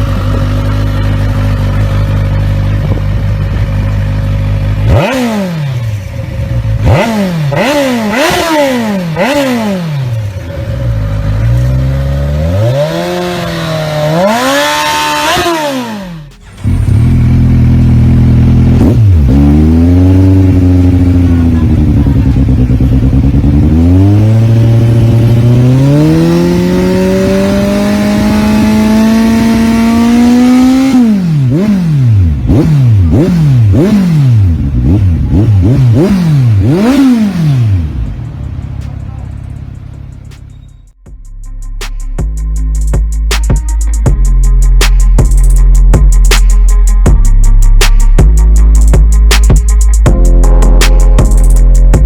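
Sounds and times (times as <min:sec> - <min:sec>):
motorcycle engine revving: 0:00.0 - 0:41.1.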